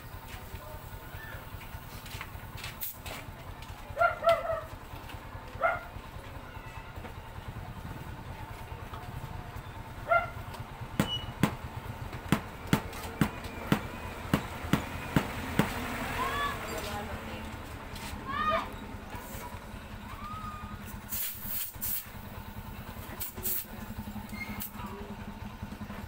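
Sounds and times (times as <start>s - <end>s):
sharp taps: 10.5s - 15.9s.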